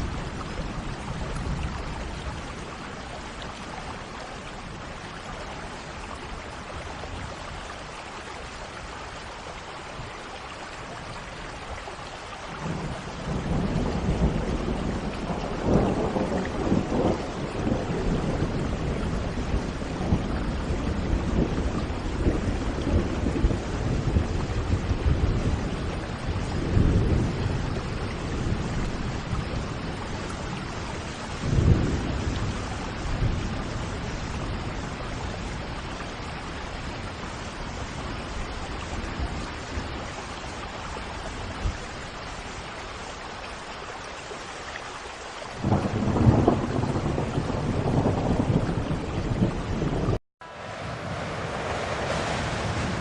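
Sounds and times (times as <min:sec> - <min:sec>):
steady rain: 0:00.0 - 0:53.0
thunder rumbling: 0:12.6 - 0:40.4, 0:45.6 - 0:50.2, 0:51.0 - 0:53.0.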